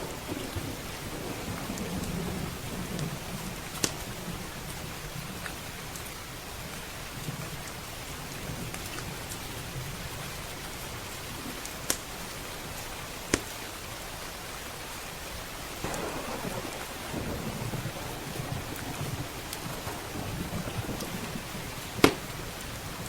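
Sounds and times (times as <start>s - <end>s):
low rolling thunder: 0.0s - 6.0s, 15.8s - 23.0s
heavy rain: 0.0s - 23.0s
wood fire popping: 15.8s - 23.0s.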